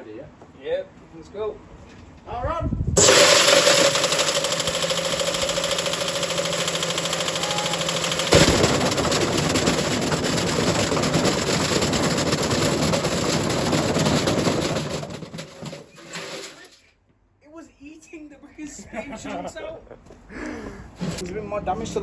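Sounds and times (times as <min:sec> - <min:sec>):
washing machine motor hum: 0:03.0 - 0:16.5
brick clattering in spinning drum: 0:03.0 - 0:16.8
sharp bang: 0:08.3 - 0:12.2.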